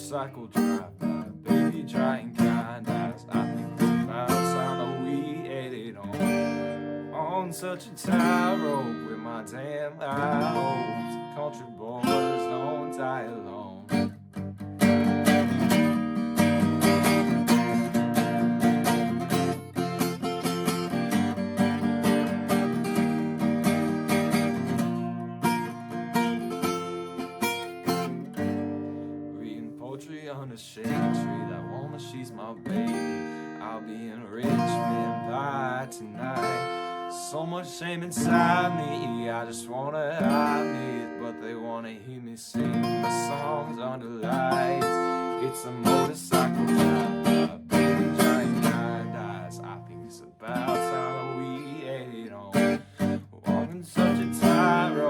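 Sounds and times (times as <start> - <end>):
person singing: 0.0 - 14.1, 29.3 - 55.0
acoustic guitar strumming: 0.0 - 55.0.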